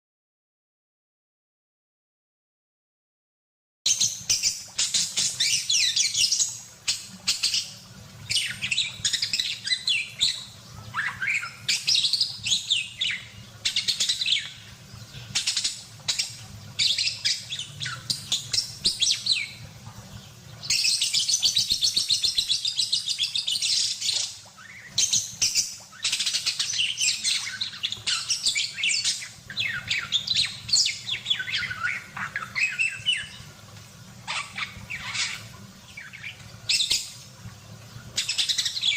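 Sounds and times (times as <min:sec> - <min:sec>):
budgerigar chattering and warbling: 0:07.0 - 0:14.6, 0:34.3 - 0:37.0.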